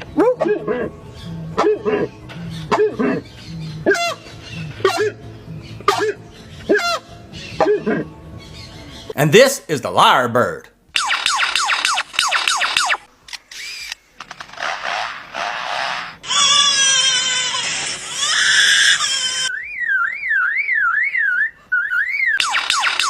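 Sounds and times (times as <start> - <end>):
bird alarm-like warbling tone: 11.0 - 13.1, 19.4 - 23.0
lyrebird downward whistles: 18.8 - 22.9.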